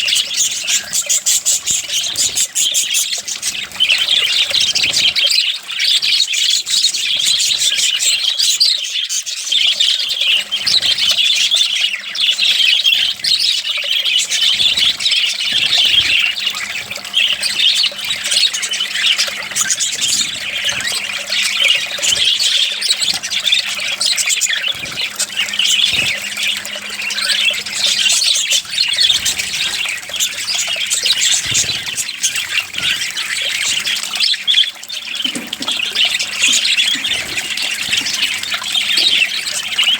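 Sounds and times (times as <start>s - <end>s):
budgies chattering and squawking: 0.0s - 39.9s
water splashing: 12.8s - 39.9s.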